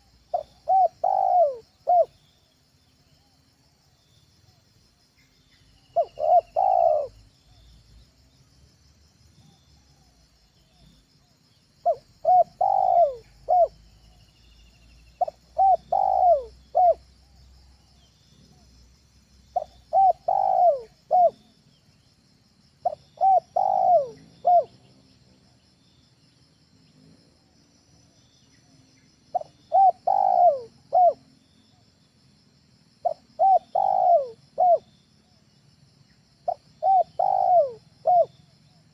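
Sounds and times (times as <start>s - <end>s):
dove cooing: 0.0s - 2.2s, 6.0s - 7.2s, 11.8s - 13.8s, 15.2s - 17.0s, 19.6s - 21.5s, 22.8s - 24.9s, 29.3s - 31.3s, 33.0s - 34.9s, 36.5s - 38.5s.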